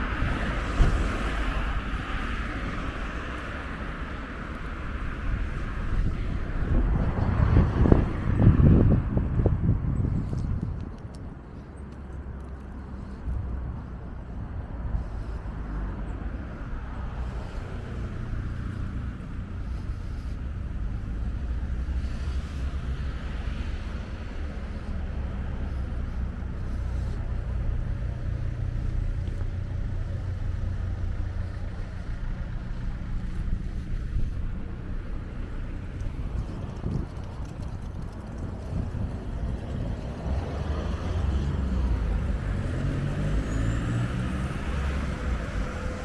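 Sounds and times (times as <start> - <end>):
car traffic: 0.0 - 46.0
wind rumble on microphone: 0.0 - 46.0
car passing close by: 35.9 - 46.0.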